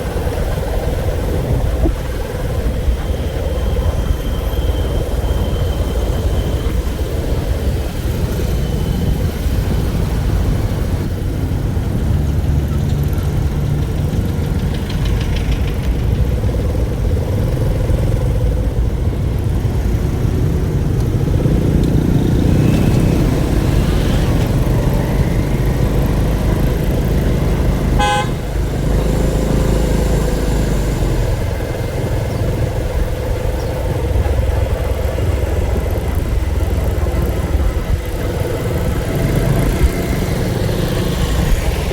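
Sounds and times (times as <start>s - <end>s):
vehicle engine and road rumble: 0.0s - 41.9s
vehicle horn toot: 27.9s - 28.6s.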